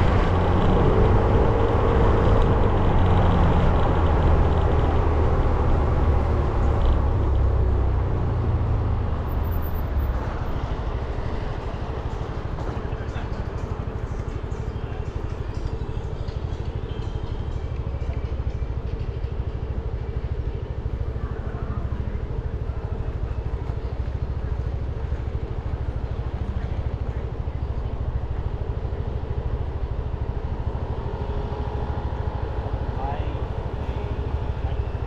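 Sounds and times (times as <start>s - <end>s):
wind rumble: 0.0s - 9.4s.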